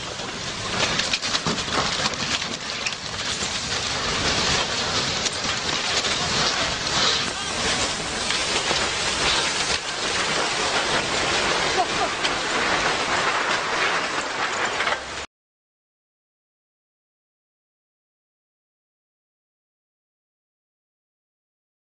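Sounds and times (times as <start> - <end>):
steady rushing noise with crackle: 0.0 - 15.3.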